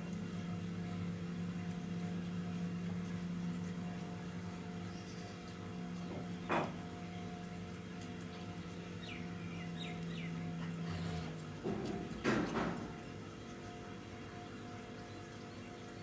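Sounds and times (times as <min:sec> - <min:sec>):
steady low hum: 0:00.0 - 0:16.0
birds chirping: 0:00.3 - 0:11.5.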